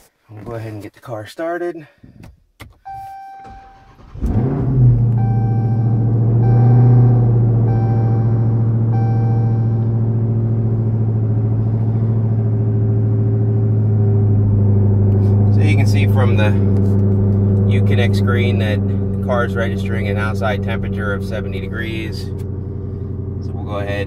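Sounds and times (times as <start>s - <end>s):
car engine starting and idling: 2.1s - 24.0s
short beeps: 2.8s - 3.8s, 5.2s - 10.0s.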